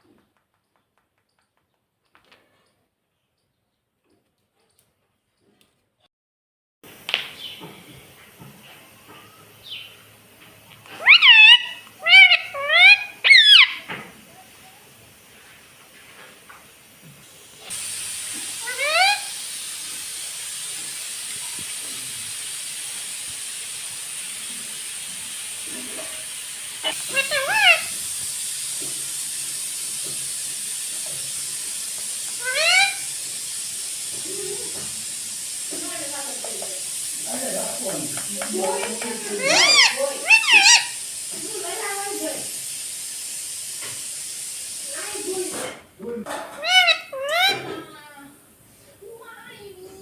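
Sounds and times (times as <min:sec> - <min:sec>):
parakeet calling: 0:10.9 - 0:13.9, 0:18.5 - 0:19.4, 0:26.8 - 0:28.0, 0:32.4 - 0:33.2, 0:38.8 - 0:41.3, 0:46.5 - 0:47.8.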